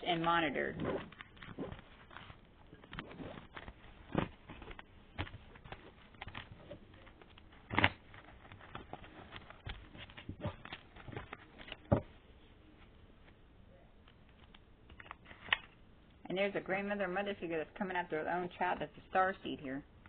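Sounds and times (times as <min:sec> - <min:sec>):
cards being shuffled: 0:00.1 - 0:12.0.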